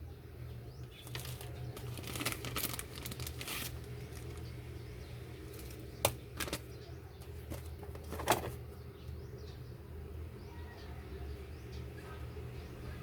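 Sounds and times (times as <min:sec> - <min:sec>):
steady low hum: 0:00.0 - 0:13.0
knocks handling boxed packaging: 0:07.4 - 0:08.6.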